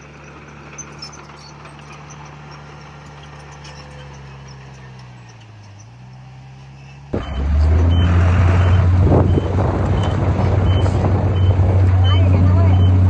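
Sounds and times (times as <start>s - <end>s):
diesel earthmoving machine running: 0.0s - 13.0s
reversing alarm beeping: 7.2s - 13.0s.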